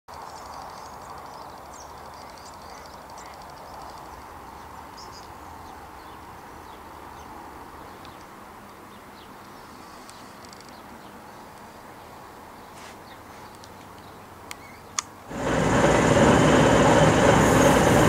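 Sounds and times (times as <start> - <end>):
birds chirping and trilling: 8.9 - 15.0
steady rushing noise: 15.3 - 18.0.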